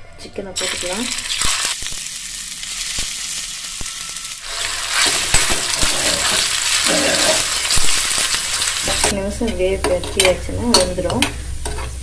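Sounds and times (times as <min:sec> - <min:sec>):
meat sizzling in hot oil: 0:00.6 - 0:09.2
metal spoon scraping a pan: 0:03.7 - 0:12.0.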